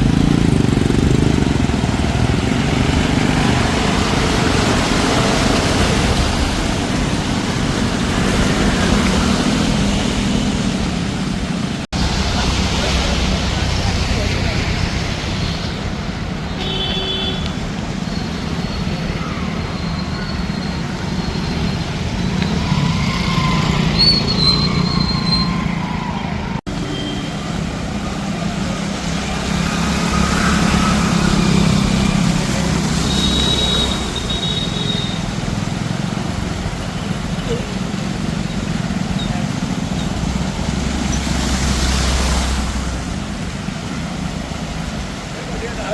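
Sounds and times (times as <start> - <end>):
vehicle engines rumbling: 0.0 - 45.9
water rushing: 0.0 - 45.9.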